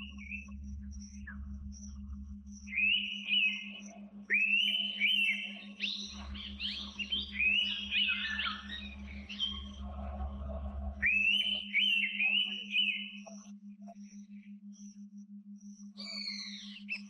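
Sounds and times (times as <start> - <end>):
faint low hum: 0.0 - 17.0
bird whistling upslurred notes: 2.7 - 9.8, 11.0 - 13.3.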